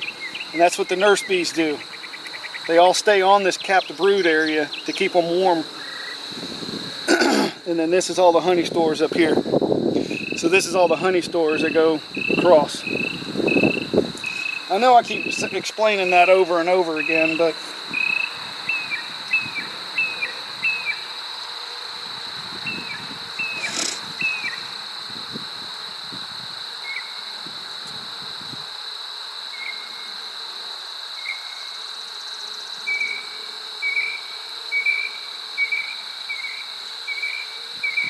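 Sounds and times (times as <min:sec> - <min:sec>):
short repeated insect chirps: 0:00.0 - 0:07.8, 0:09.3 - 0:16.4, 0:17.0 - 0:21.6, 0:22.2 - 0:28.9
insects trilling: 0:00.0 - 0:38.0.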